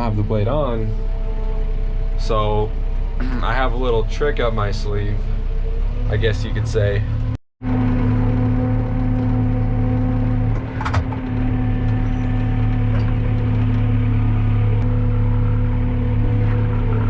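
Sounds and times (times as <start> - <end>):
tractor engine running: 0.0 - 17.0
clunk: 7.8 - 14.0.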